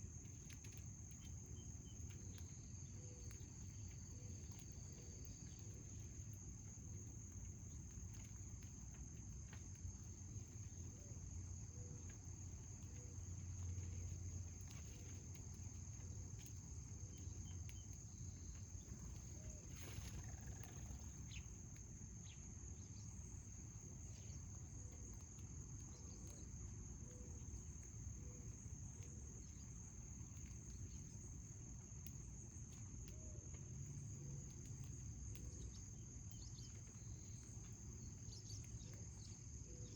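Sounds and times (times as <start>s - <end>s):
faint low outdoor rumble: 0.0s - 39.9s
high-pitched insect chorus: 11.5s - 24.8s.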